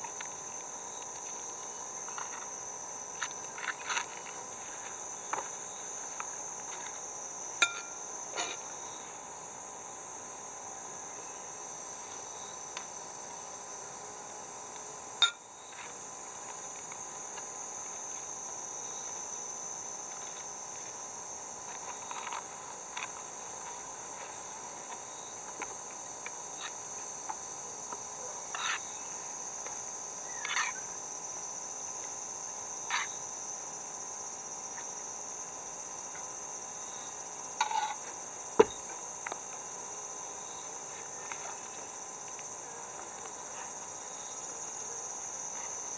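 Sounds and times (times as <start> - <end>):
chorus of insects: 0.0 - 45.9.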